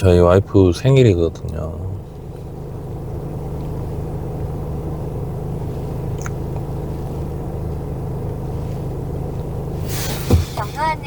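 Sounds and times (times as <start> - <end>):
car engine and tyre hum: 0.0 - 11.0.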